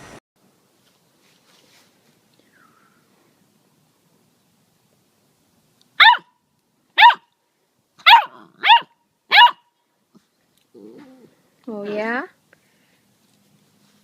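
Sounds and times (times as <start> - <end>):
puppy barking: 6.0 - 6.4, 7.0 - 7.3, 8.0 - 9.7.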